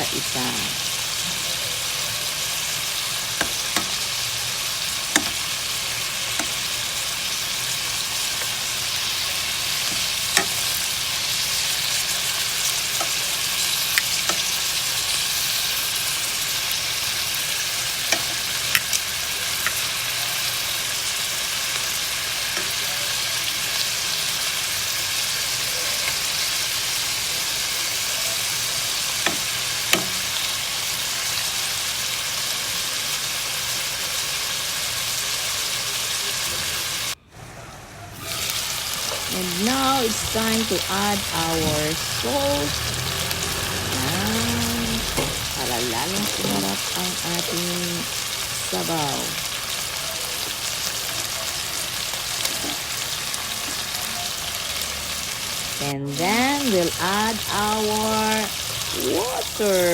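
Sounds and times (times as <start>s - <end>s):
chicken sizzling in a pan: 0.0s - 59.9s
utensil clicking against pan: 3.4s - 4.1s, 5.0s - 5.6s, 9.8s - 10.9s, 13.8s - 14.6s, 29.2s - 30.4s.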